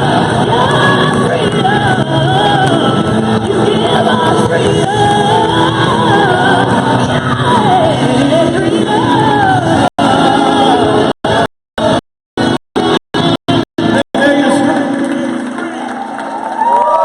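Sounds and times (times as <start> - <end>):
person singing a melody: 0.0 - 12.0.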